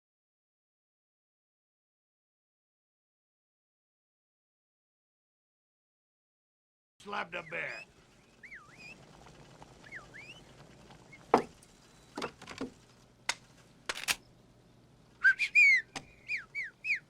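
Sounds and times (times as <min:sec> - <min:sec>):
sharp knocks: 0:11.3 - 0:11.6
person whistling: 0:15.2 - 0:17.0.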